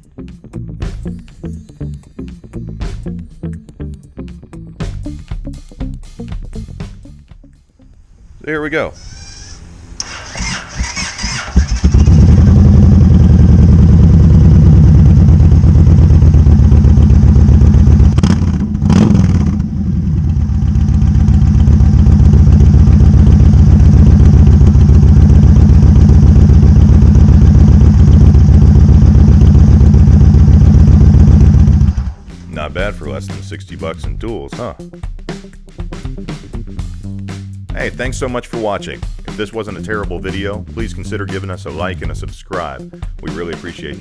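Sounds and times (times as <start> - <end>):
motorcycle v-twin exhaust: 8.0 - 34.7, 37.7 - 44.0.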